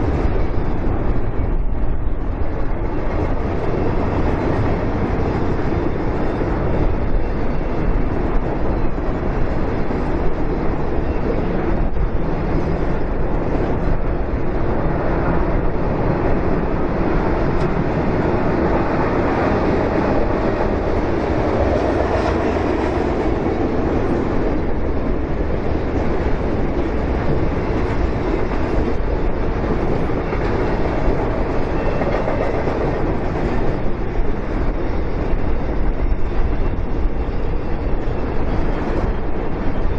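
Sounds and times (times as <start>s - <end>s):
freight train rumbling on rails: 0.0s - 39.9s.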